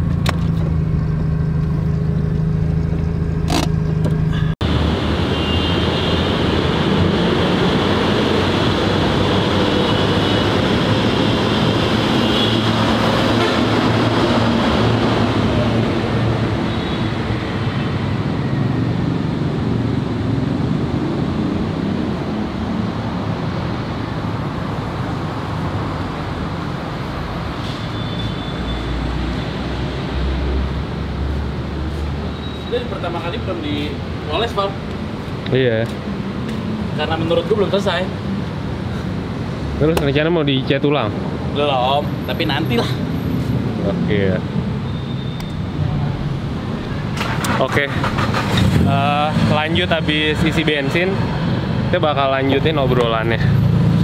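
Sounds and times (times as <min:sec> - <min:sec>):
car engine running: 0:00.0 - 0:04.5
outdoor traffic noise: 0:00.0 - 0:54.0.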